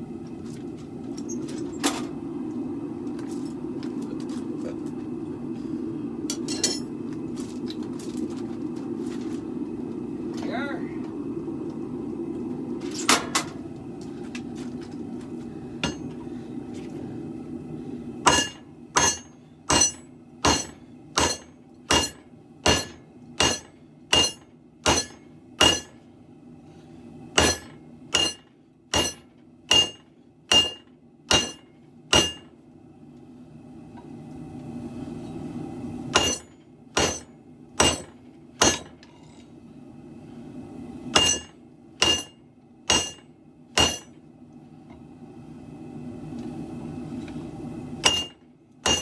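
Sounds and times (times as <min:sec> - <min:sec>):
steady low hum: 0:00.0 - 0:49.0
hammer striking steel on anvil: 0:15.8 - 0:16.2, 0:18.3 - 0:26.0, 0:27.4 - 0:32.5, 0:36.2 - 0:39.0, 0:41.1 - 0:43.2, 0:43.8 - 0:44.2, 0:48.0 - 0:49.0.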